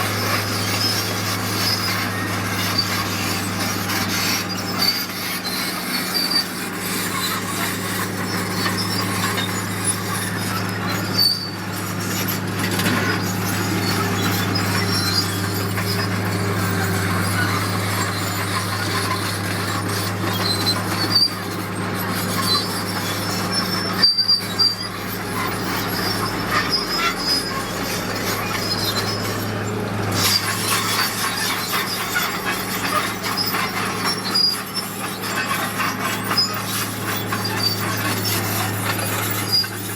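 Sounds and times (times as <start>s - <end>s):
diesel machinery engine running: 0.0s - 39.9s
metallic squeaks and rattles: 0.0s - 39.9s.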